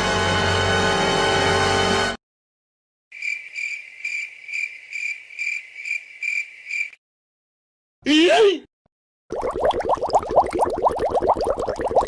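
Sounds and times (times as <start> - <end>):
cricket chirping: 3.1 - 7.0.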